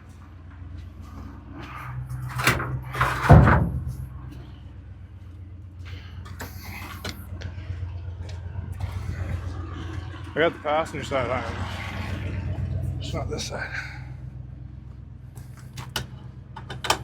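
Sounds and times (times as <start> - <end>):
tow truck engine running: 0.0 - 17.0
heavy clunk: 2.1 - 4.4.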